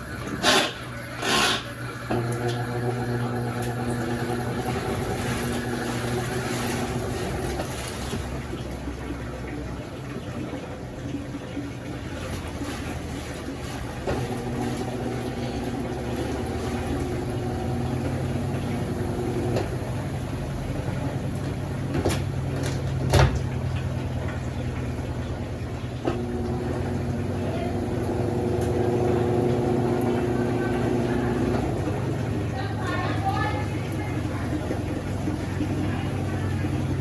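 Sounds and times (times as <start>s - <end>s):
washing machine motor humming: 0.0s - 37.0s.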